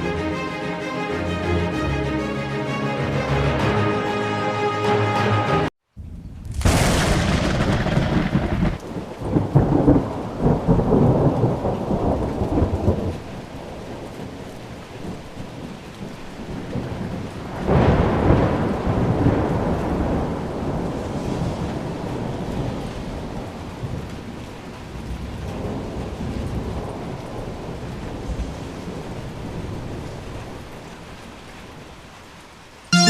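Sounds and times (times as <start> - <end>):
steady rain: 0.0 - 2.1, 5.7 - 33.0
thunder rumbling: 6.0 - 14.4, 16.7 - 24.4.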